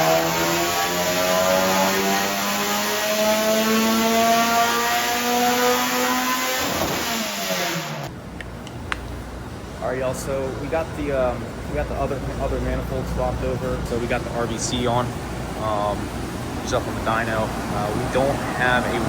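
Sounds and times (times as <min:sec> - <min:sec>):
car engine revving under load: 0:00.0 - 0:08.1.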